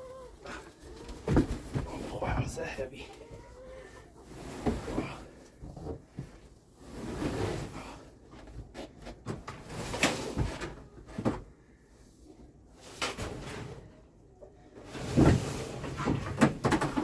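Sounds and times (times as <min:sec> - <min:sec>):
hand tool scraping wooden floor: 0:04.3 - 0:10.6.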